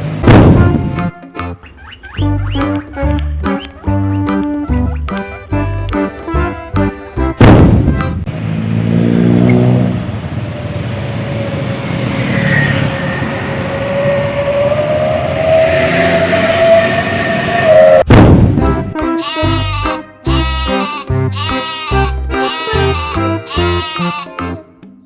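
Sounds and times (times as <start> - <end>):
road noise: 0.0 - 24.4
vehicle engine accelerating: 2.2 - 18.1.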